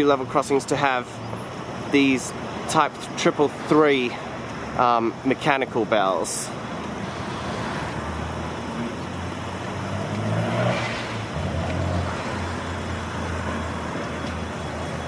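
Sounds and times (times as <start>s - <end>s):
traffic engines humming: 0.0s - 15.0s
vehicle passing: 7.0s - 14.1s.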